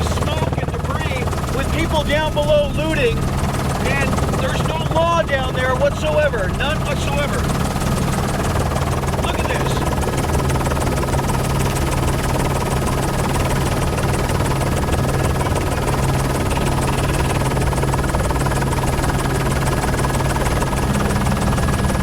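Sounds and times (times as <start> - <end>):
helicopter engine and rotors drone: 0.0 - 22.0.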